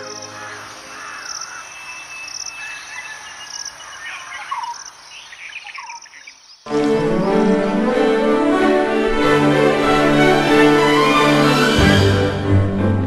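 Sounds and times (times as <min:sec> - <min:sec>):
insect chirping: 0:00.0 - 0:06.7.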